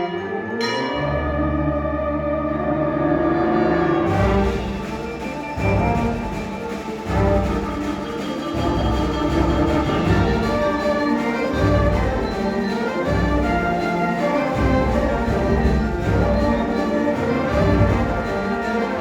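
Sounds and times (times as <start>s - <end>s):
concert band playing: 4.0s - 19.0s.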